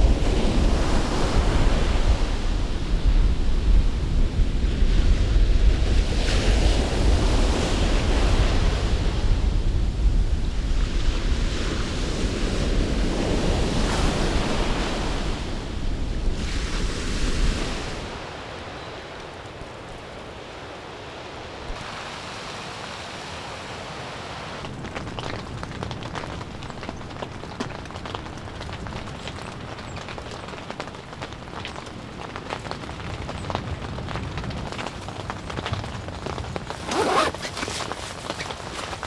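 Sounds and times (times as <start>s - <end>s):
sea waves breaking on beach: 0.0s - 3.1s, 10.8s - 24.8s
wind rumbling on microphone: 0.0s - 22.0s.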